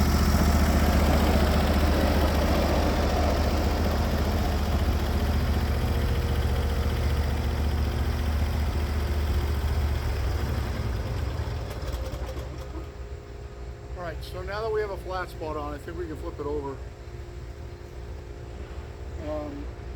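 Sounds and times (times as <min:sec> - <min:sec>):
bandsaw mill engine under load: 0:00.0 - 0:13.4.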